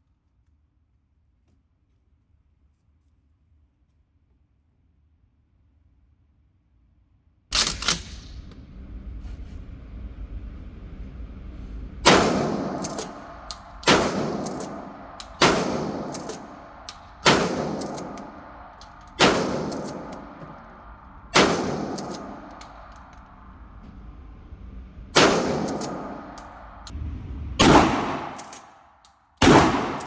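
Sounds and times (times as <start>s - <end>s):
shotgun shots: 12.0s - 23.1s, 25.2s - 26.9s, 27.6s - 28.8s, 29.4s - 30.0s.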